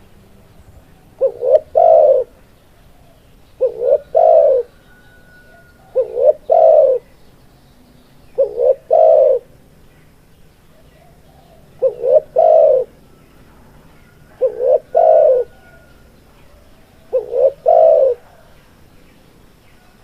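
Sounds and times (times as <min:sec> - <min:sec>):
dove cooing: 0:01.1 - 0:07.1, 0:08.3 - 0:09.6, 0:10.7 - 0:18.6.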